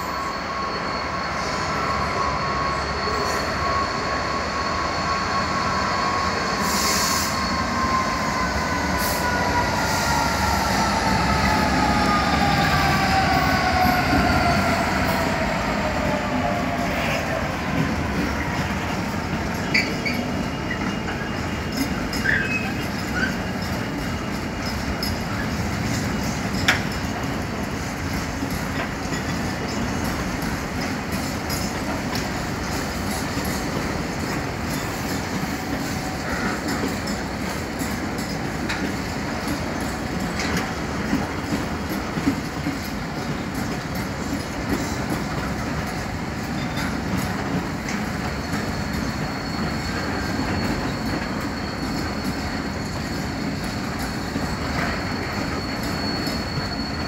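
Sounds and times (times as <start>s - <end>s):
freight train wagons rumbling: 0.0s - 57.0s
high wheel squeal: 0.0s - 57.0s
wheels clicking over rail joints: 17.7s - 56.4s.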